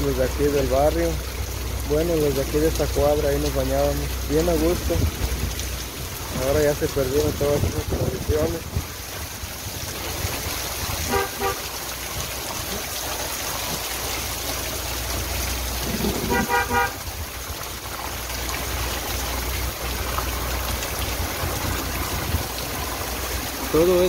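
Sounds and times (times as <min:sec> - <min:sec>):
heavy rain on street: 0:00.0 - 0:24.0
vehicle horn toots: 0:11.1 - 0:11.7, 0:16.1 - 0:17.0.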